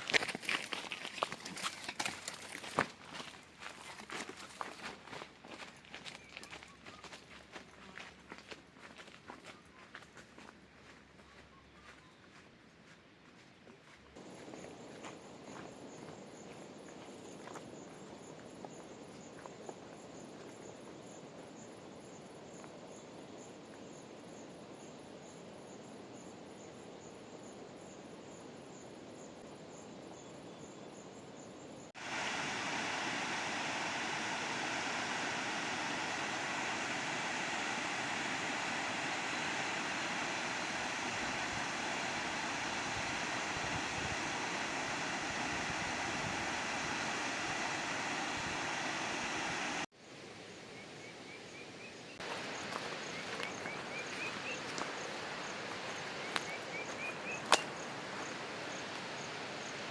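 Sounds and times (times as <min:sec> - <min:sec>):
insects trilling: 0:14.2 - 0:49.9, 0:51.0 - 0:59.9
waterfall rushing: 0:32.0 - 0:49.9.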